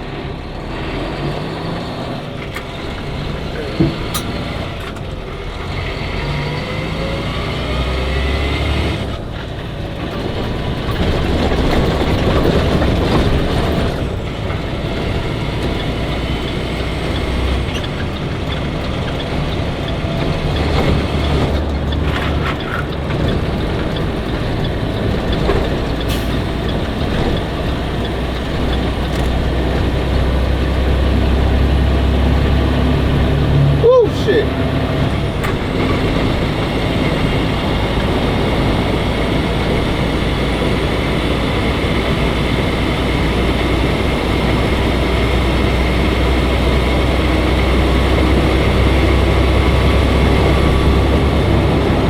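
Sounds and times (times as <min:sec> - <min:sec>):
truck engine and road noise: 0:00.0 - 0:52.0.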